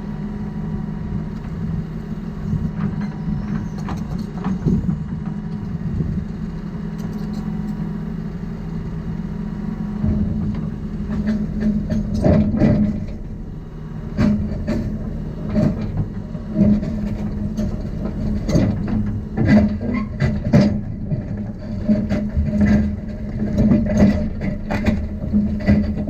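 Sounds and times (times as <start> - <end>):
diesel engine running: 0.0 - 26.0
metallic clanks and knocks: 10.0 - 13.4, 14.1 - 26.0.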